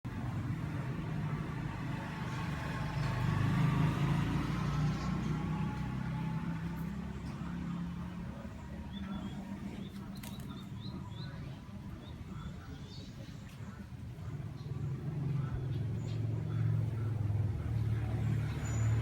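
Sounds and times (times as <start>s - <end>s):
vehicle engine hum: 0.1s - 19.0s
small birds chirping: 0.3s - 19.0s.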